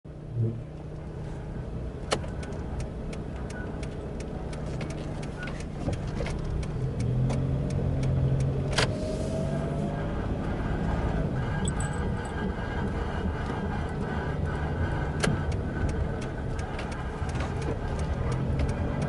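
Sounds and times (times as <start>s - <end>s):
low engine and road hum: 0.0s - 19.0s
ticking from car wheel: 2.0s - 9.0s, 11.4s - 19.0s.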